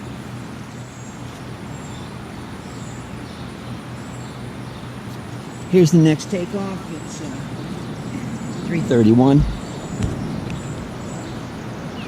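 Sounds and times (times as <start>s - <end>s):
distant jet airliner taking off: 6.4s - 12.0s.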